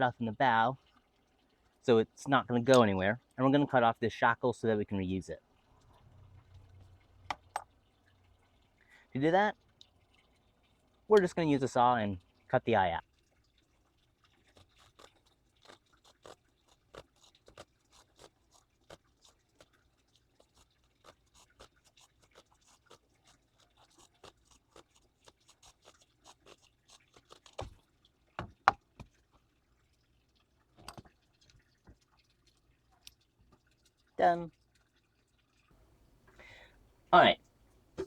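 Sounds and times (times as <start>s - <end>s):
saw cutting rope: 14.6s - 19.7s, 20.4s - 27.8s.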